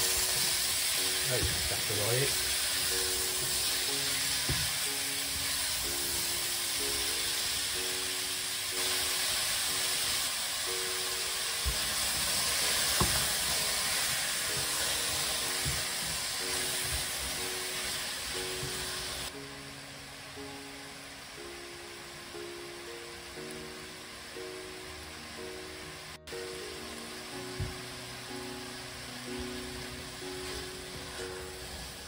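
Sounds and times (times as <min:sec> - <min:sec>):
vegetables sizzling in oil: 0:00.0 - 0:32.0
spatula knocking on pan: 0:11.6 - 0:13.4.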